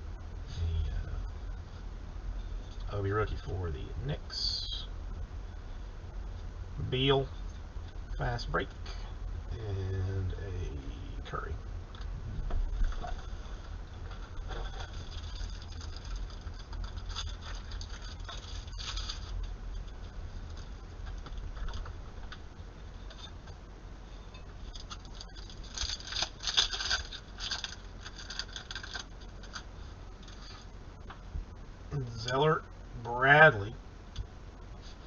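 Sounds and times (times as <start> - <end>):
steady low hum: 0.0 - 35.0
card packs crinkling: 14.1 - 19.4, 24.7 - 30.6.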